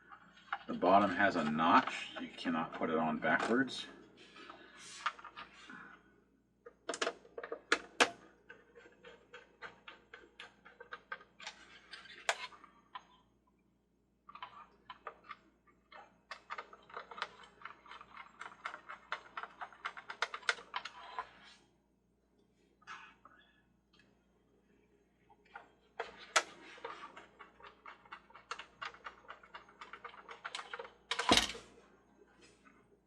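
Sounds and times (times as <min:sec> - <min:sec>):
plastic parts clicking together: 0:06.7 - 0:13.1, 0:14.3 - 0:21.3, 0:25.5 - 0:31.7.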